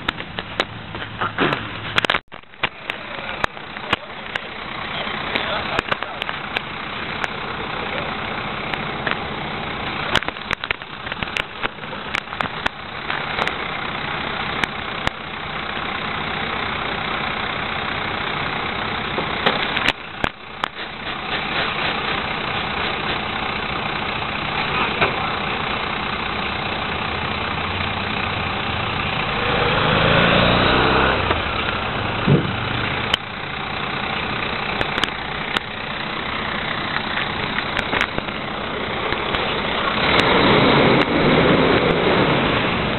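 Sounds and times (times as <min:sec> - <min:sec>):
diesel truck engine idling: 0:00.0 - 0:42.9
sharp knocks and clanks: 0:32.2 - 0:33.2.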